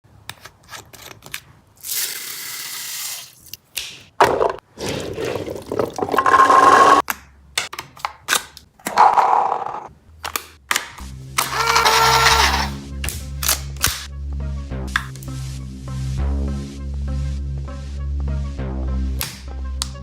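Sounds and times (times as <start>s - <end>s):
toy blaster firing with motor whine: 11.5s - 12.7s.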